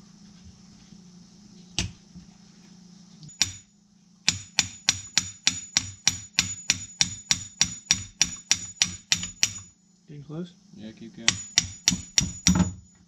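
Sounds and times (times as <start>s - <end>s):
hammer tapping on metal: 3.3s - 3.7s, 4.3s - 9.7s, 11.3s - 12.8s.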